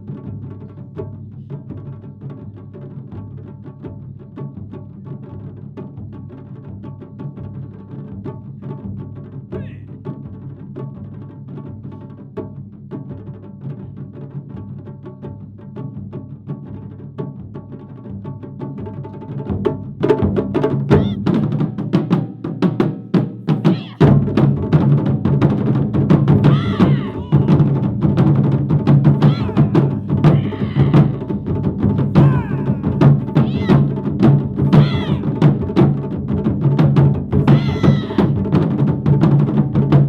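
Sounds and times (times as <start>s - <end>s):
taiko drum ensemble playing: 19.3s - 40.0s.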